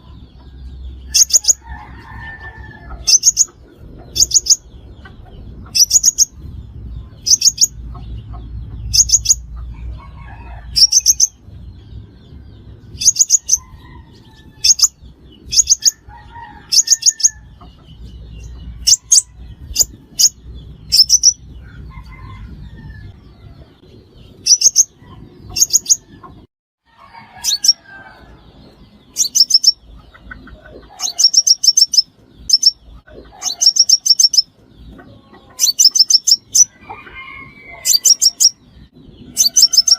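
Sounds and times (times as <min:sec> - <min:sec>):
sunbird chirping: 0:04.1 - 0:06.4, 0:07.2 - 0:09.5, 0:13.0 - 0:13.7, 0:29.1 - 0:30.2.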